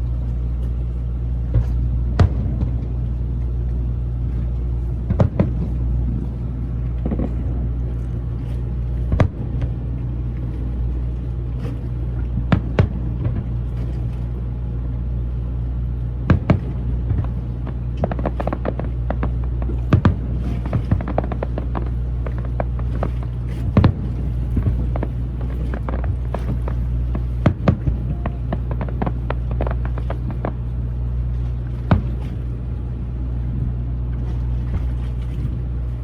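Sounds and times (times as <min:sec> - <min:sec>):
steady low rumble: 0:00.0 - 0:36.0
crackling bangs: 0:05.0 - 0:07.8, 0:16.2 - 0:30.7.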